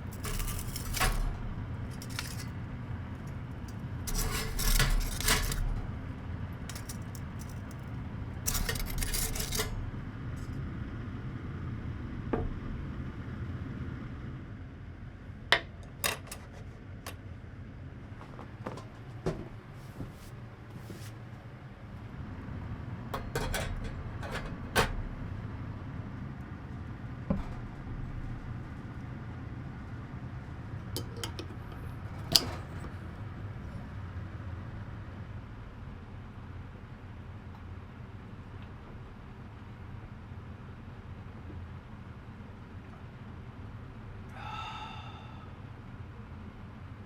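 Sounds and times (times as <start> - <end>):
steady low hum: 0.0 - 47.0
dishes and utensils clinking: 6.7 - 7.8, 31.0 - 32.6.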